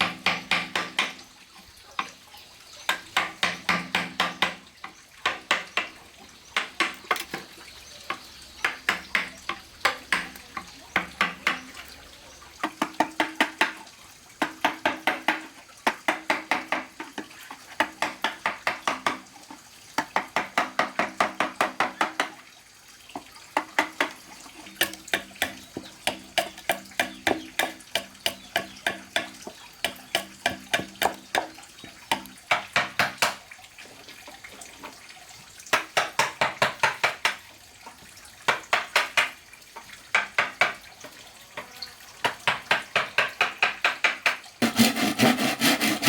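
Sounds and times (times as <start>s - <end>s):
hand tool chopping bamboo: 23.6s - 33.4s, 42.7s - 46.0s.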